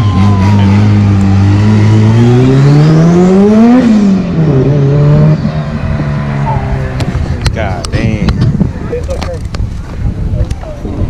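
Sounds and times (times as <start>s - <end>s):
car engine revving and idling: 0.0s - 7.9s.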